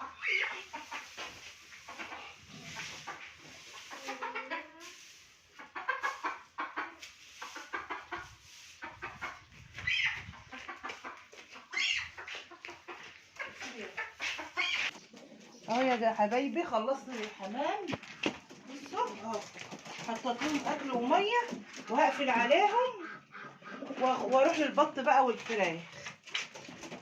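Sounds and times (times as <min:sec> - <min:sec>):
chickens clucking: 0:00.0 - 0:27.0
knocks and scrapes: 0:12.2 - 0:22.4, 0:24.0 - 0:27.0.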